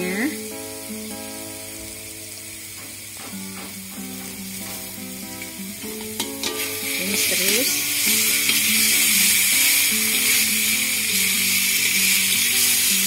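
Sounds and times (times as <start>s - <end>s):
soft instrumental music: 0.0s - 13.0s
spice paste sizzling in oil: 0.0s - 13.0s.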